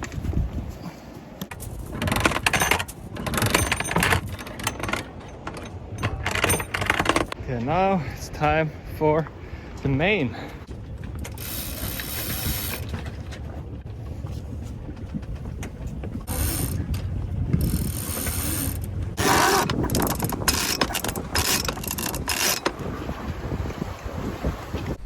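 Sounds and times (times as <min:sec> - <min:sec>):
steady low rumble: 0:00.0 - 0:22.2
winch ratcheting clicks: 0:01.4 - 0:07.4, 0:11.2 - 0:12.9, 0:16.3 - 0:22.8.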